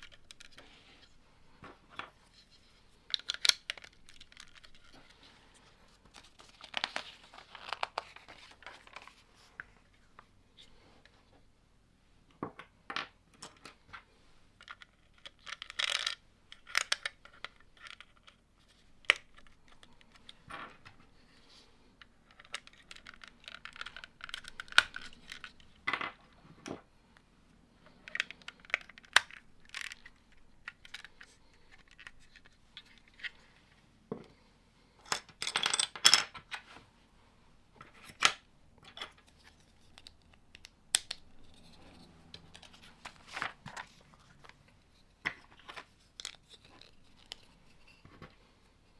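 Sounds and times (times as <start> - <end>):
plastic bricks clicking and clattering: 0.0 - 0.8, 3.0 - 5.2, 14.6 - 21.0, 22.0 - 26.8, 27.9 - 33.3.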